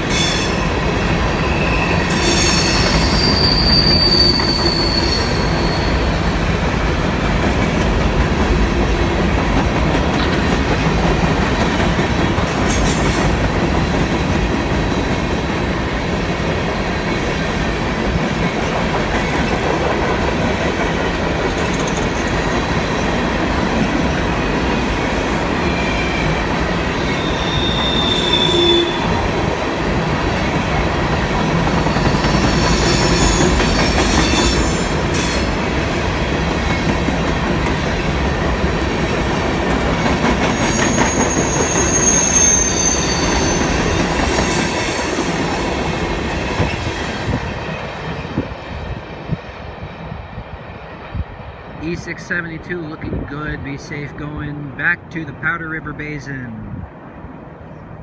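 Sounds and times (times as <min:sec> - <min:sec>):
freight cars rumbling on rails: 0:00.0 - 0:55.9
high wheel squeals: 0:00.1 - 0:06.3, 0:27.0 - 0:29.2, 0:31.8 - 0:35.5, 0:40.5 - 0:47.5.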